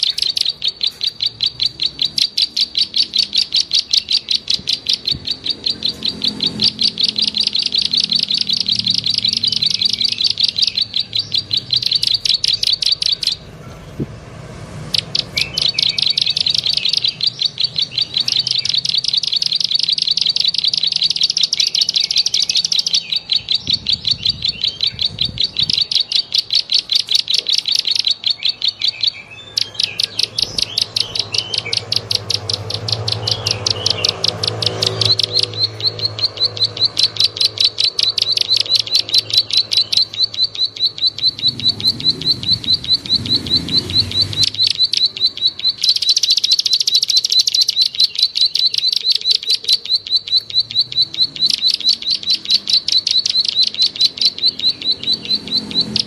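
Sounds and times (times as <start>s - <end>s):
bird clicking chirps: 0.0s - 13.5s, 14.6s - 56.0s.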